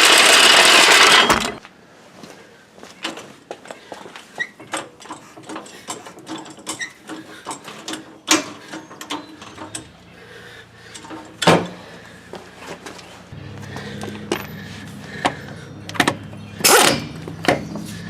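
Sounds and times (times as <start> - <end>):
ratchet clicking: 0.0 - 1.4.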